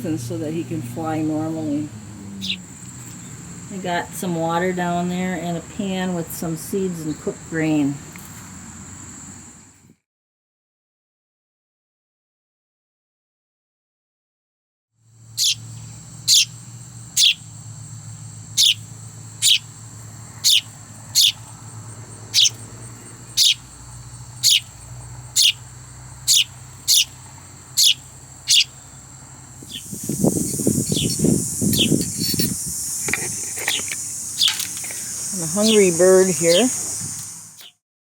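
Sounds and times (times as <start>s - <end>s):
fledgling sparrow chirping: 0.0s - 4.4s, 15.3s - 37.8s
loud hissing noise: 22.4s - 37.7s.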